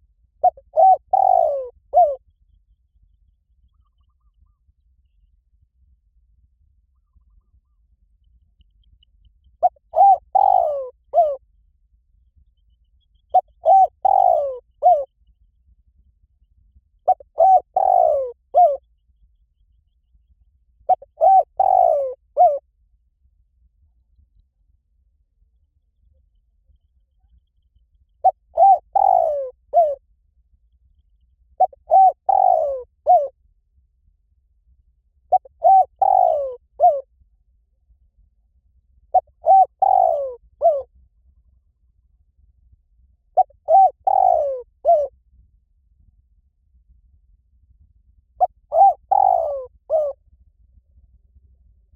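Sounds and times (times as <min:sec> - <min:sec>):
dove cooing: 0:00.4 - 0:02.2, 0:09.6 - 0:11.4, 0:13.3 - 0:15.1, 0:17.1 - 0:18.8, 0:20.9 - 0:22.6, 0:28.2 - 0:30.0, 0:31.6 - 0:33.3, 0:35.3 - 0:37.0, 0:39.1 - 0:40.9, 0:43.4 - 0:45.1, 0:48.4 - 0:50.2.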